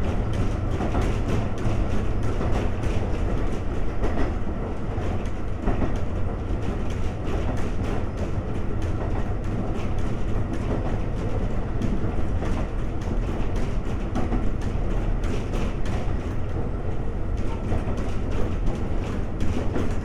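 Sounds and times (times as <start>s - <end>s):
train wheels rumbling on rail: 0.0s - 20.0s
wheels clacking over rail joints: 0.0s - 20.0s.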